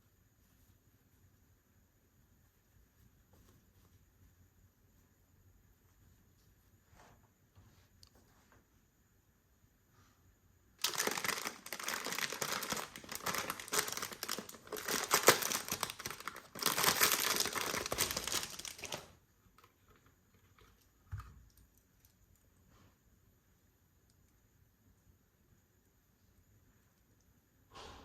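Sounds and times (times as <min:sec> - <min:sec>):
packaging crinkling and rustling: 0:10.8 - 0:20.8.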